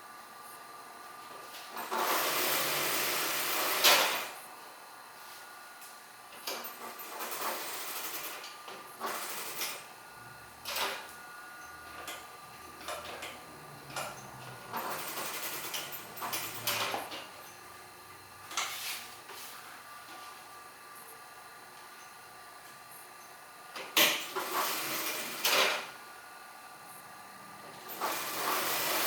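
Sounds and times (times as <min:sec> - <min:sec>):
sewing machine bursts: 0:01.8 - 0:04.4, 0:14.2 - 0:16.9, 0:24.1 - 0:25.9, 0:27.8 - 0:29.0.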